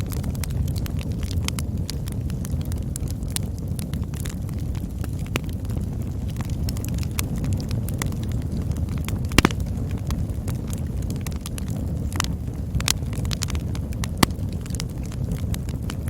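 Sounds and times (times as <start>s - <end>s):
campfire crackling: 0.0s - 16.0s
fire low rumble: 0.0s - 16.0s
sharp fire pops: 7.6s - 16.0s.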